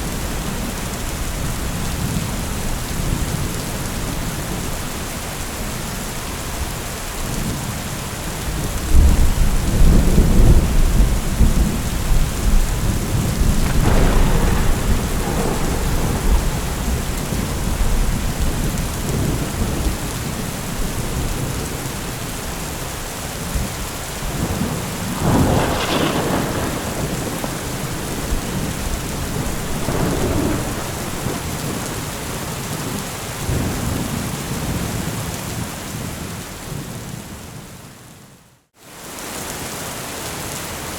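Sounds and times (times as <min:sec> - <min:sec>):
heavy rain: 0:00.0 - 0:40.9
thunder rumbling and cracking: 0:06.7 - 0:35.3.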